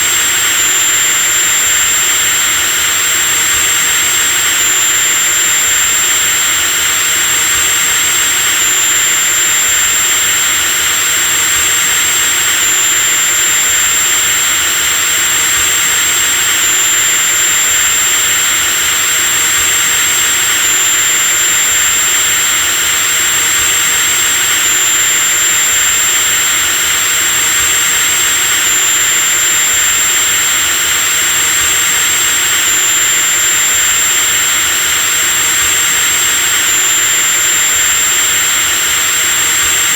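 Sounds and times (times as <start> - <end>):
electric drill whining: 0.0 - 39.9.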